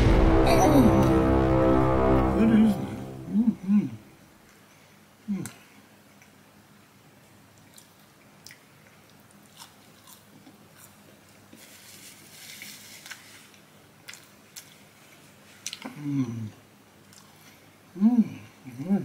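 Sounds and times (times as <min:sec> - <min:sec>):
biting and chewing food: 0:07.5 - 0:16.0.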